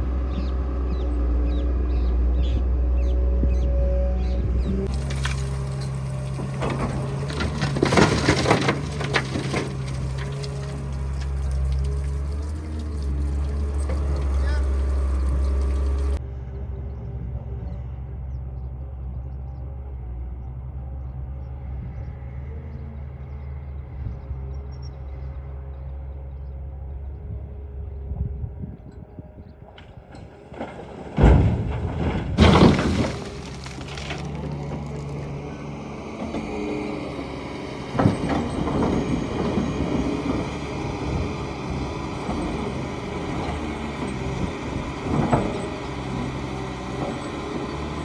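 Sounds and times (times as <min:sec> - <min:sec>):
heavy diesel engine running: 0:00.0 - 0:16.2, 0:29.6 - 0:48.0
rattling clatter in steel truck bed: 0:04.8 - 0:16.2, 0:29.7 - 0:48.0.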